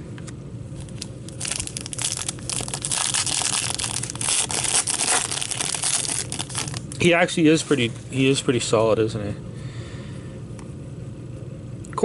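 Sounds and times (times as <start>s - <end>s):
foil wrapper crinkling and tearing: 0.8s - 7.0s.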